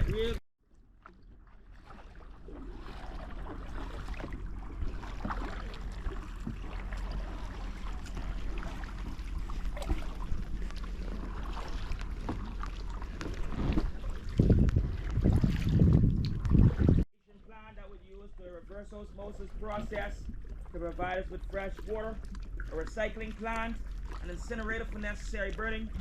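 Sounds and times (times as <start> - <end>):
wind rumble on microphone: 0.0 - 0.4, 2.6 - 17.1
kayak paddles splashing: 0.0 - 26.0.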